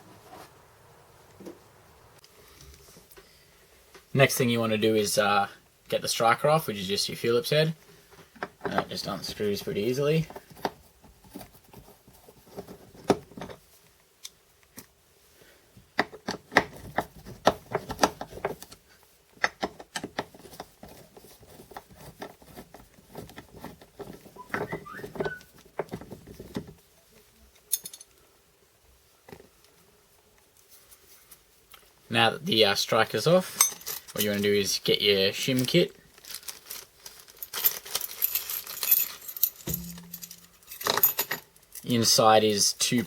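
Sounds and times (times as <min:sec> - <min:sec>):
brief squeak: 0:24.4 - 0:25.5
metallic handling of screws: 0:27.6 - 0:28.2, 0:33.5 - 0:34.5, 0:35.5 - 0:42.0.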